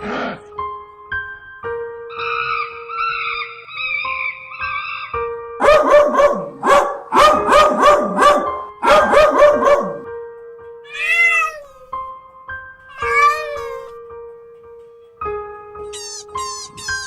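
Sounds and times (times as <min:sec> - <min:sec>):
background music with held tones: 0:00.0 - 0:17.0
cat crying: 0:10.9 - 0:12.1, 0:12.9 - 0:14.0, 0:15.9 - 0:17.0
cat meowing: 0:10.9 - 0:12.1, 0:12.9 - 0:14.0, 0:15.9 - 0:17.0.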